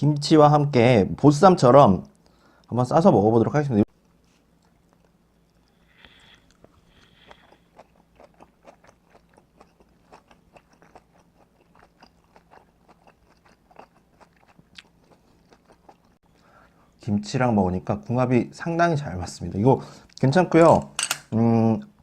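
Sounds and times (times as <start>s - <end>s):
chewing with soft crunches: 3.9s - 16.5s.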